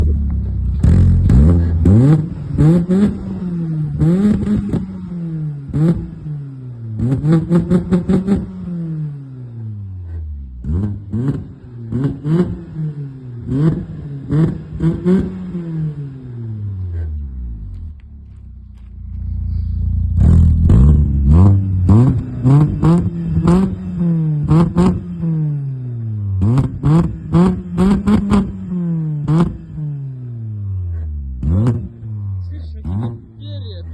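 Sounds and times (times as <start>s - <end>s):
car engine revving: 0.0s - 33.9s
exhaust crackles: 13.4s - 25.4s.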